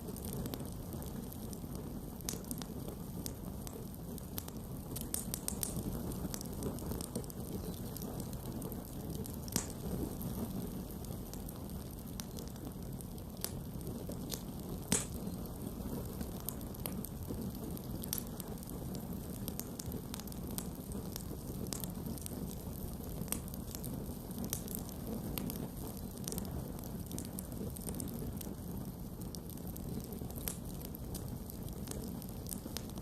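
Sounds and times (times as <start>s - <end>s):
fire crackling and snapping: 0.0s - 33.0s
flame rumble: 0.0s - 33.0s
loud fire pop: 14.3s - 15.3s.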